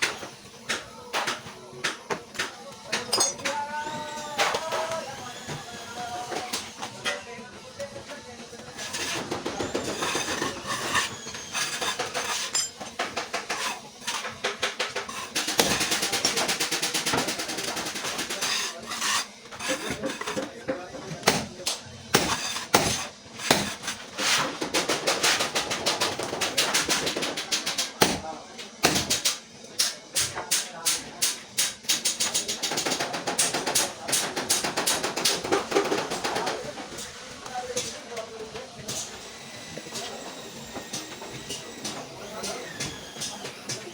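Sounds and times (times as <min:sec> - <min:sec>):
metal clinking and tapping: 0:03.0 - 0:03.6.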